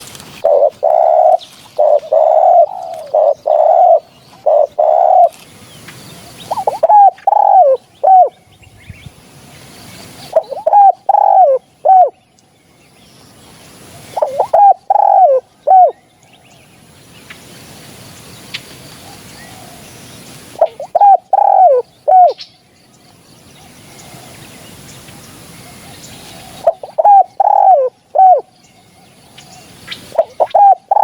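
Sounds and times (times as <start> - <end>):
dove cooing: 0.0 - 5.4, 6.4 - 8.4, 10.3 - 12.2, 14.0 - 16.0, 20.5 - 22.4, 25.7 - 31.0.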